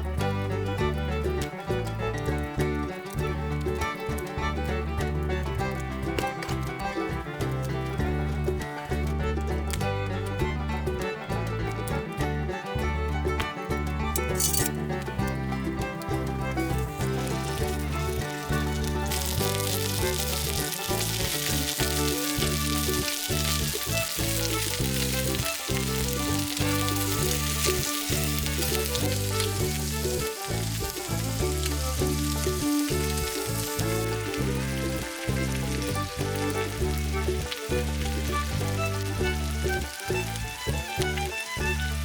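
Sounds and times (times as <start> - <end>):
background music: 0.0 - 42.0
beef sizzling on griddle: 14.3 - 14.7, 16.7 - 40.8.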